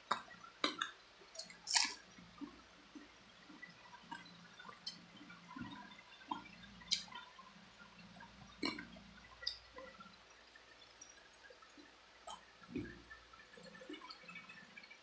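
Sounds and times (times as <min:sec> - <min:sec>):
wet chewing mouth sounds: 0:00.1 - 0:02.6, 0:06.3 - 0:07.2.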